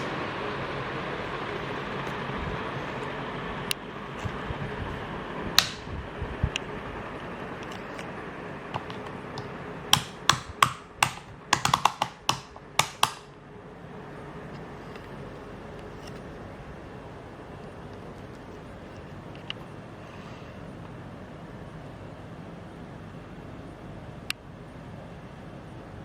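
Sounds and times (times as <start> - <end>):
ceiling fan humming: 0.0 - 26.0
sharp clicks: 8.8 - 13.4.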